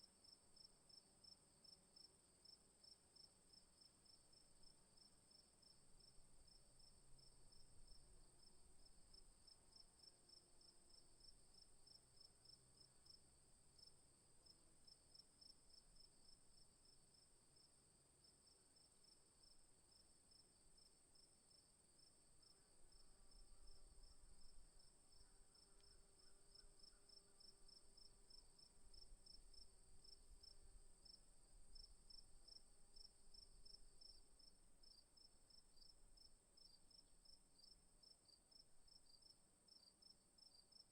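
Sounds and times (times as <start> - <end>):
crickets chirping: 21.5 - 40.8.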